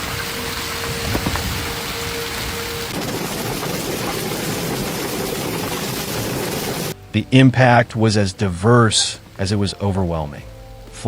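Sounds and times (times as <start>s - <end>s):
heavy rain pouring: 0.0s - 7.0s
low thunder rumbling: 0.0s - 7.0s.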